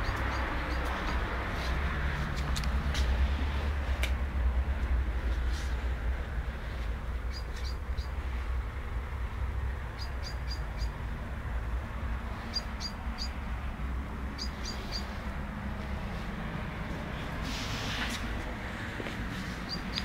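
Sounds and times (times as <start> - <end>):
bird chirping: 0.0 - 1.0, 7.3 - 8.2, 9.9 - 11.0, 12.4 - 13.4, 14.3 - 15.2, 19.6 - 20.0
steady low rumble: 0.0 - 20.0.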